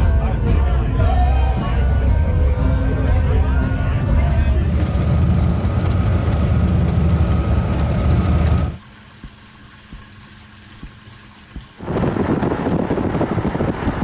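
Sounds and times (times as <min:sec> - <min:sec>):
motorcycle engine rumbling: 0:03.1 - 0:09.4.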